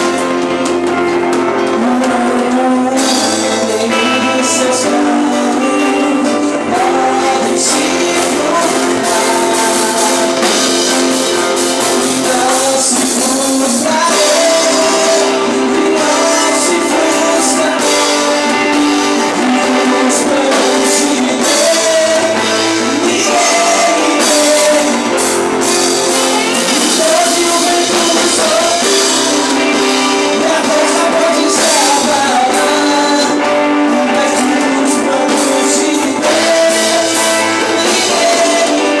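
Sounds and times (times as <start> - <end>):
church band playing: 0.0 - 39.0
people singing: 0.0 - 39.0.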